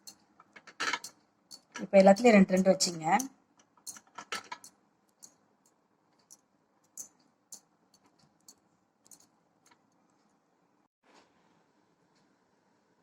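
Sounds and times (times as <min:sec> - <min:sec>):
light clicks and taps: 0:03.6 - 0:10.4.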